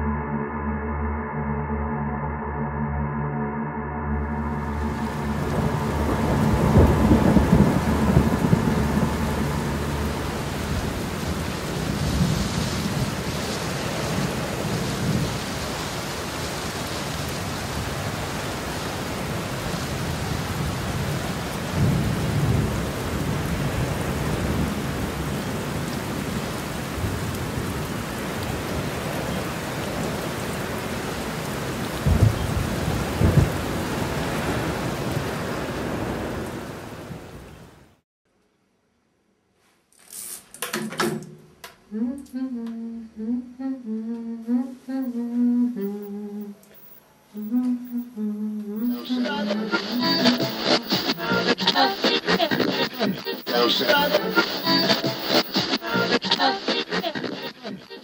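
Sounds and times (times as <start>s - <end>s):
steady rain: 4.3s - 38.0s, 44.4s - 58.0s
thunder rumbling: 4.6s - 37.5s, 48.8s - 56.4s.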